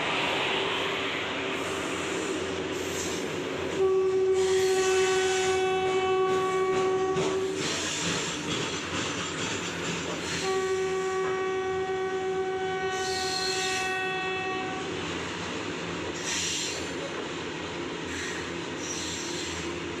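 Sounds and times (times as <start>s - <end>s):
freight train running: 0.0s - 20.0s
locomotive air horn blast: 3.8s - 7.6s, 10.3s - 14.9s.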